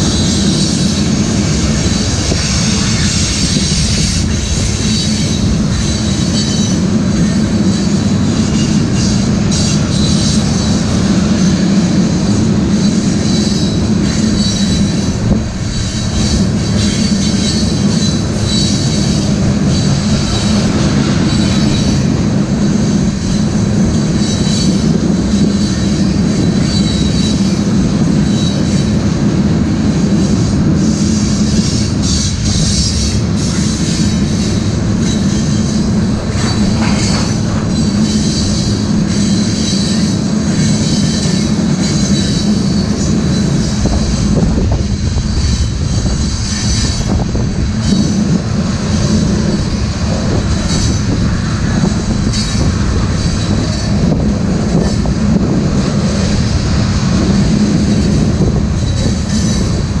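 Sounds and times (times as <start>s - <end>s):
high-pitched wheel squeal: 0.0s - 29.0s, 30.3s - 44.3s
steel wheels rumbling on rails: 0.0s - 60.0s.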